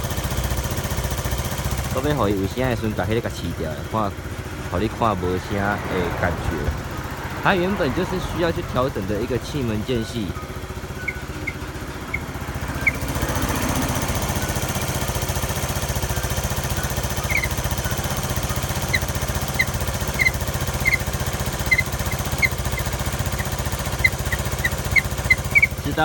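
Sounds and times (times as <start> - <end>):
scooter engine idling: 0.0 - 26.0
light irregular high ticks: 16.7 - 25.9.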